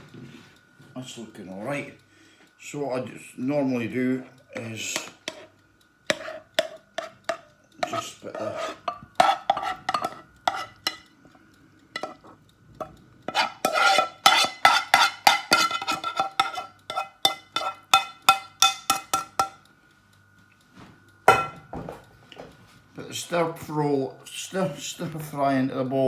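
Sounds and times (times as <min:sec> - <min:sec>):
utensil scraping a pan: 0:04.6 - 0:11.0, 0:12.0 - 0:19.5.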